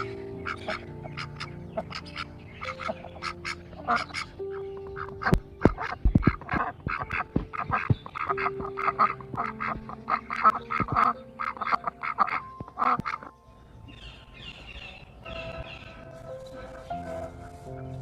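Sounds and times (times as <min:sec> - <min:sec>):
ducks quacking: 0:00.0 - 0:13.3.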